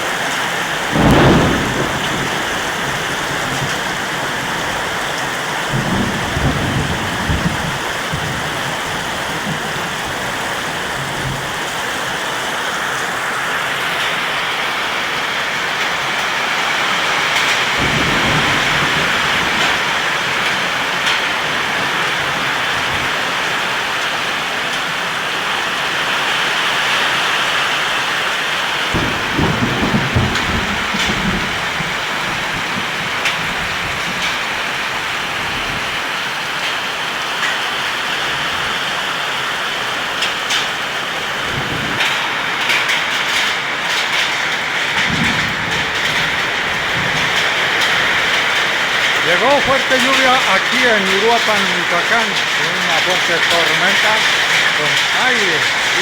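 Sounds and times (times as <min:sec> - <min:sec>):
heavy rain pouring: 0:00.0 - 0:56.0
low thunder rumbles: 0:00.2 - 0:12.1, 0:15.8 - 0:23.9, 0:28.9 - 0:36.0, 0:41.2 - 0:56.0.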